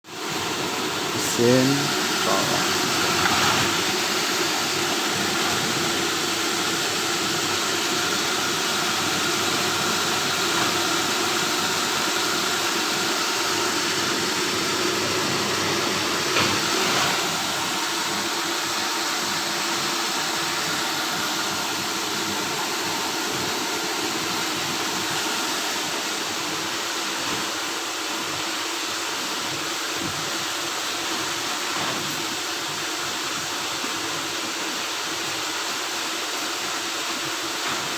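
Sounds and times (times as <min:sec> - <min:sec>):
industrial machinery humming: 0:00.6 - 0:12.0.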